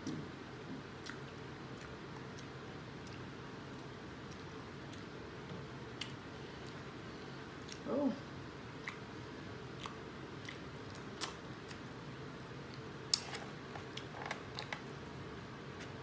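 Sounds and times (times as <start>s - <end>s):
low room hum: 0.0s - 16.0s
person chewing corn: 1.0s - 5.1s, 9.8s - 11.8s.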